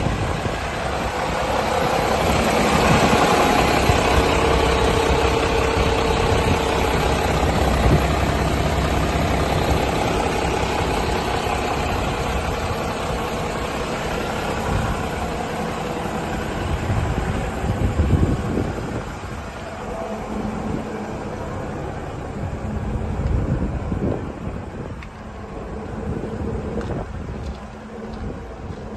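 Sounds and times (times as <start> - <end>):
diesel truck engine idling: 0.0 - 28.9.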